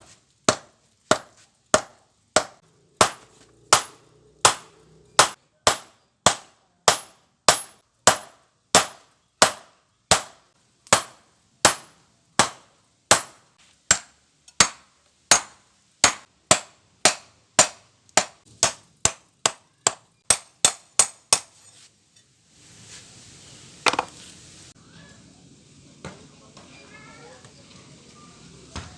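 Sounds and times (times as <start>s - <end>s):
hammer striking steel on anvil: 0.5s - 21.7s
steady hiss: 21.9s - 28.7s.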